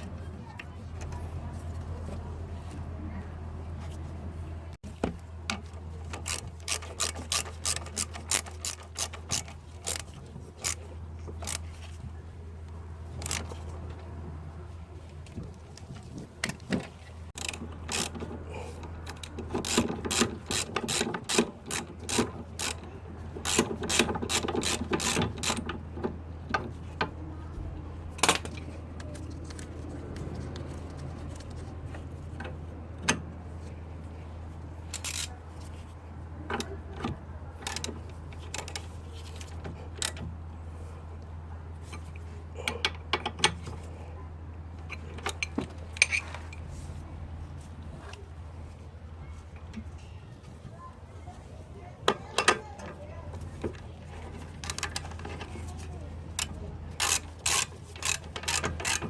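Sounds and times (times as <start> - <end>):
ratchet wrench clicking: 6.1 - 10.8, 11.4 - 11.6, 13.2 - 13.6, 17.4 - 25.6, 34.9 - 35.3, 56.4 - 59.0.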